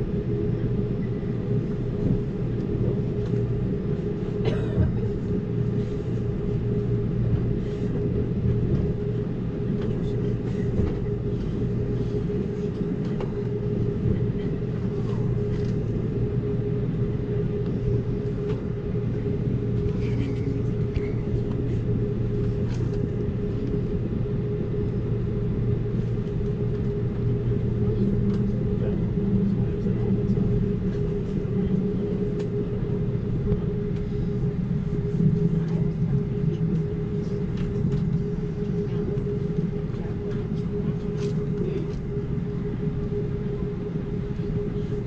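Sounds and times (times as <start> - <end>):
constant hum: 0.0 - 45.0
train running rumble: 0.0 - 45.0.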